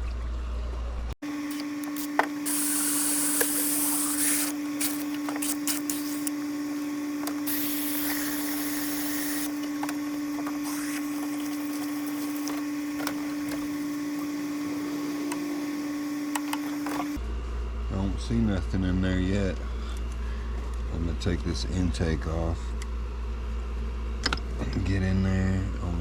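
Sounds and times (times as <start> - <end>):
steady motor hum: 0.7 - 26.0
hiss: 1.5 - 6.3, 7.5 - 9.5.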